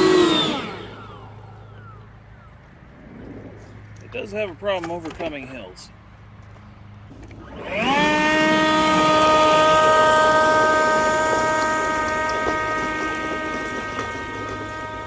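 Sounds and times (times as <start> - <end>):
leaf blower whine: 0.0 - 2.2, 7.1 - 15.0.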